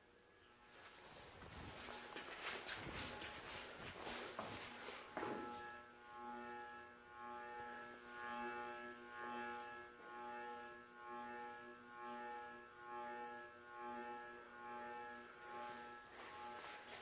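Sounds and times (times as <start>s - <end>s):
ceiling fan motor hum: 0.6s - 6.8s.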